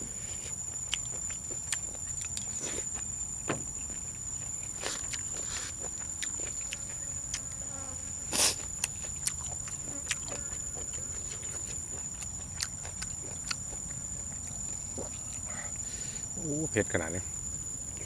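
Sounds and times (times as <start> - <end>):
crickets chirring: 0.0 - 18.0
eating clicks and smacks: 0.8 - 3.1, 8.8 - 15.5.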